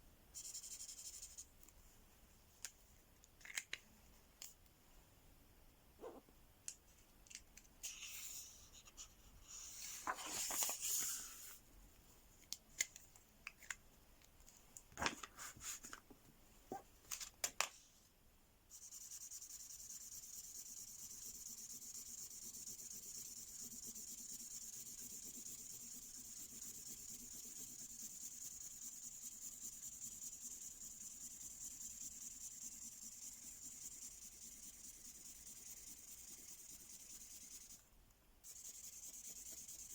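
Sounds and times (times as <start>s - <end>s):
rustles of handling: 9.7s - 11.6s
pen scratching on paper: 18.9s - 37.8s, 38.4s - 39.9s.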